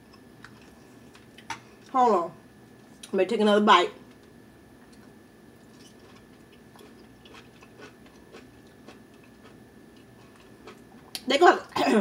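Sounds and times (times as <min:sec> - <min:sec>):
person chewing food: 0:00.0 - 0:01.5, 0:04.8 - 0:11.2.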